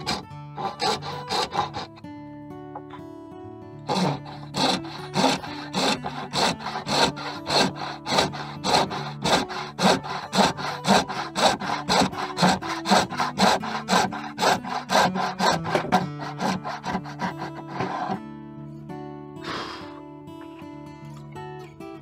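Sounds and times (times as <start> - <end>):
hand saw cutting wood: 0.0 - 2.0, 3.8 - 18.2, 19.4 - 20.0.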